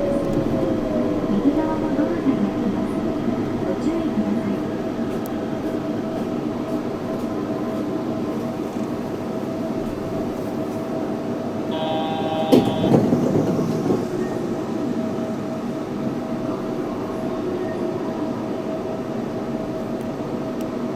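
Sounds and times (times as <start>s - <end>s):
train running with whine: 0.0s - 20.9s
high multi-note tone: 11.7s - 13.0s.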